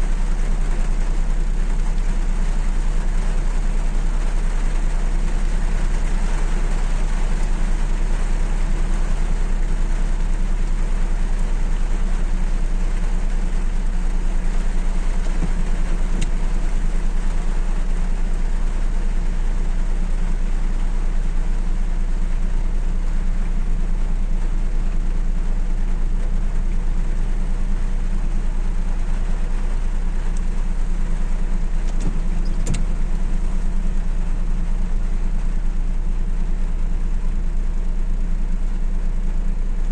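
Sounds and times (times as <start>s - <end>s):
car engine idling hum: 0.0s - 39.9s
rain hissing: 0.0s - 39.9s
faint sharp ticks: 16.2s - 16.4s.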